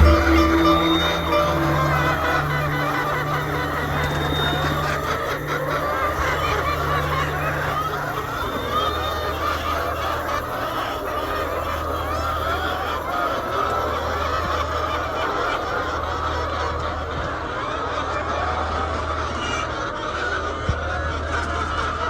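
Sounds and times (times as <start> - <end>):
low hum: 0.0 - 14.9
hens clucking and squawking: 0.0 - 19.7.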